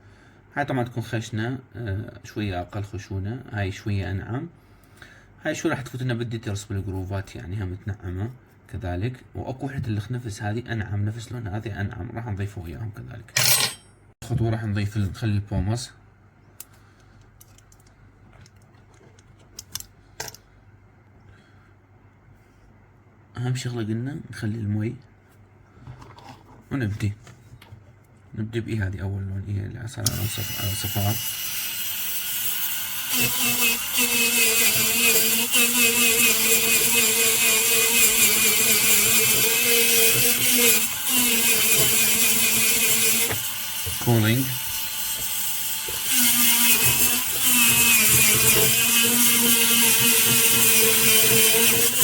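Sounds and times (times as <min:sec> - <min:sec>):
dental handpiece motor whine: 0:30.1 - 0:52.0.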